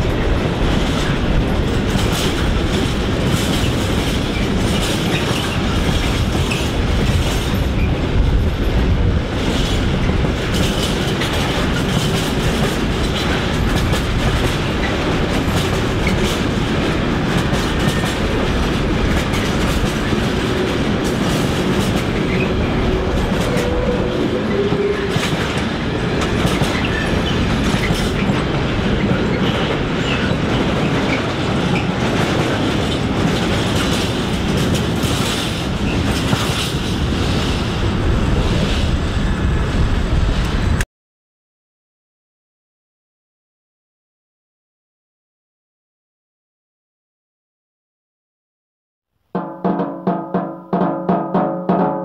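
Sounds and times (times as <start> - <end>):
train wheels clattering over rail joints: 0.0 - 37.6.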